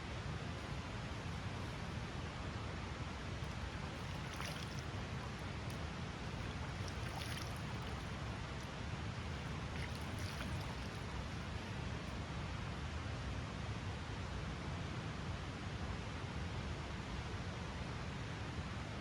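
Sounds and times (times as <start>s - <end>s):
stream rushing: 0.0s - 12.0s.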